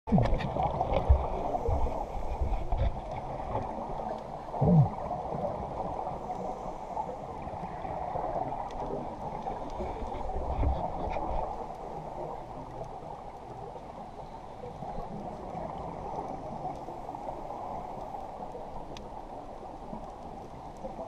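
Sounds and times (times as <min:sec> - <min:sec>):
short downward gurgles: 0:04.6 - 0:05.1.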